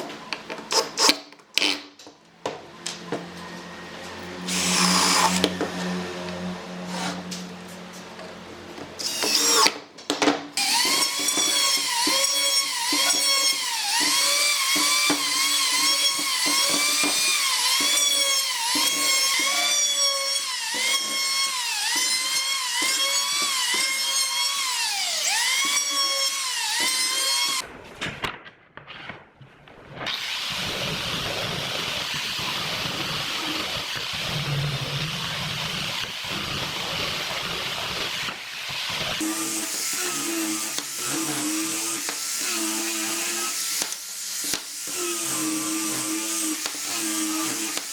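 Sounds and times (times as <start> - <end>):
power tool motor whining: 3.2 - 8.0, 8.9 - 9.8, 10.6 - 27.6.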